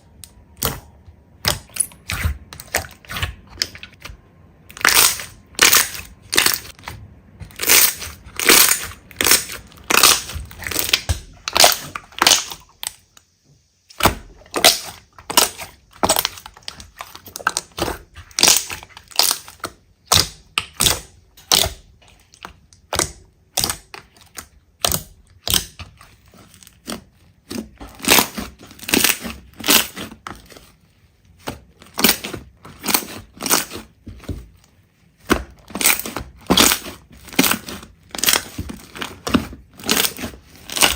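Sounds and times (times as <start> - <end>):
slime squished by hand: 4.7 - 13.1, 31.4 - 40.9.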